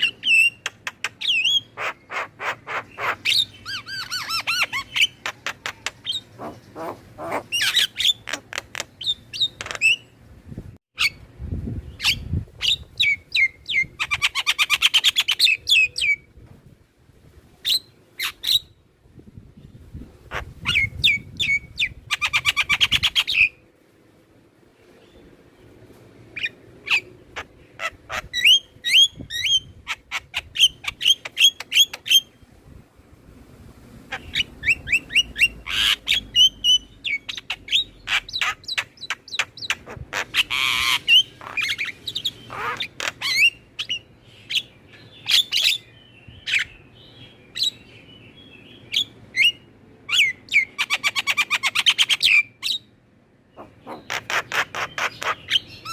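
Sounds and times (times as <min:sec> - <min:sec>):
birds chattering: 0:00.0 - 0:10.2, 0:24.8 - 0:32.4, 0:34.1 - 0:55.9
harsh rasping bird calls: 0:00.0 - 0:10.2, 0:26.3 - 0:32.4, 0:34.1 - 0:52.9, 0:53.5 - 0:55.9.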